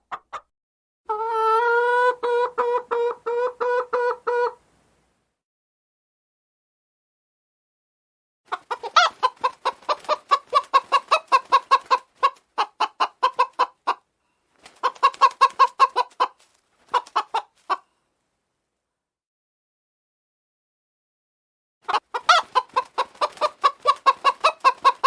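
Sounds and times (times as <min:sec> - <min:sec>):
hens clucking: 0:01.1 - 0:04.6, 0:08.5 - 0:14.1, 0:14.7 - 0:17.9, 0:21.8 - 0:25.0.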